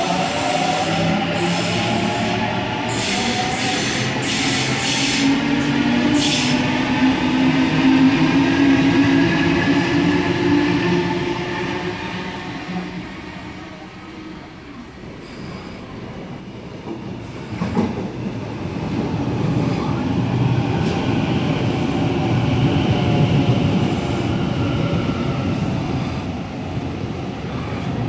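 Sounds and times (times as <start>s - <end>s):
train wheels rumbling on rails: 15.0s - 28.0s.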